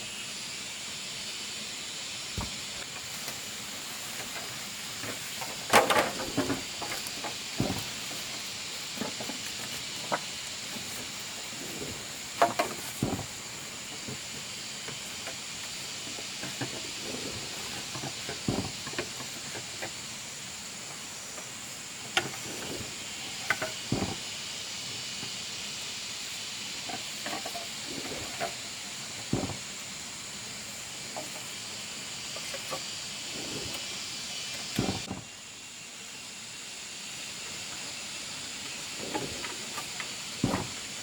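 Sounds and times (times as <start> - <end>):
steady high hiss: 0.0 - 41.0
irregular knocks and clatters: 4.2 - 15.4, 16.1 - 20.0, 29.2 - 29.7, 39.0 - 41.0.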